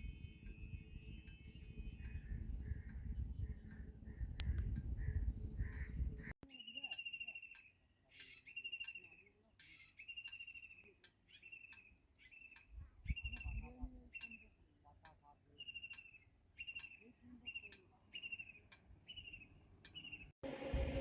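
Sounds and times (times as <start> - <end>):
bird calling: 0.0 - 14.6, 15.5 - 20.7
low rumble: 20.4 - 21.0
steady hum: 20.4 - 21.0.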